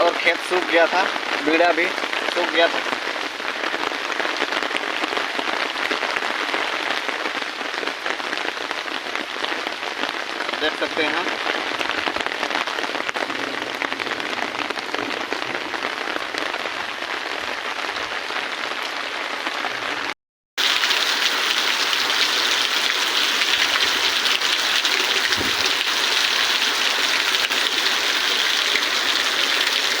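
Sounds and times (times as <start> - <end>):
heavy rain pouring: 20.0 - 30.0.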